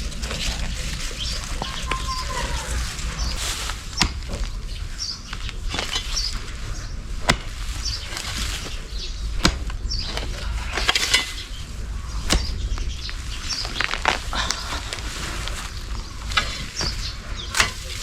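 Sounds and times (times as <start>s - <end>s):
high bird chirps: 1.2s - 7.0s.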